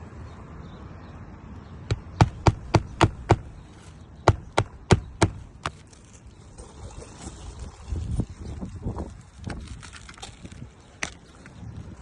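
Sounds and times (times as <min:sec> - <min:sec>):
hammer nailing roof shingle: 0:01.9 - 0:03.6, 0:04.2 - 0:05.9.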